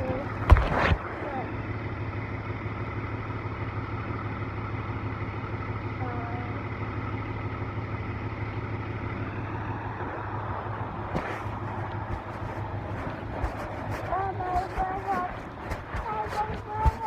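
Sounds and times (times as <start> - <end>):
vehicle engine idling: 0.0 - 17.0
faint voice: 1.0 - 1.6, 6.0 - 6.6, 13.5 - 17.0.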